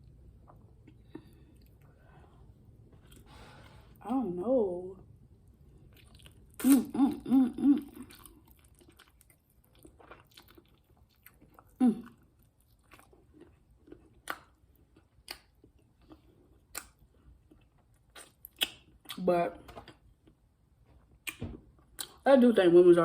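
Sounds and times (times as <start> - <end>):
person chewing food: 0.0 - 4.0, 5.5 - 22.2
humming or laughing voice: 6.6 - 8.0.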